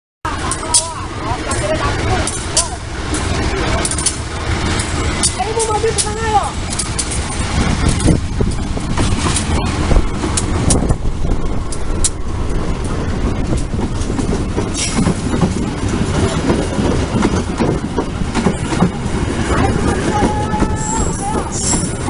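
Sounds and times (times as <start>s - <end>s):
train wheels rumbling on rails: 0.3s - 22.0s
sharp clicks and knocks: 2.2s - 19.0s.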